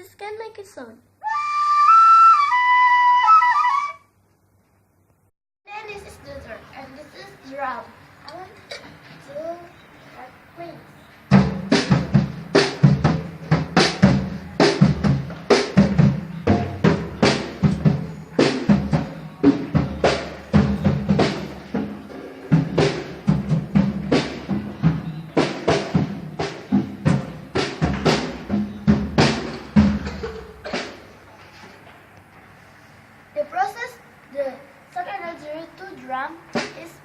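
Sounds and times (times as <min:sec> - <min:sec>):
drum being hit: 0:11.3 - 0:31.3, 0:36.5 - 0:36.9.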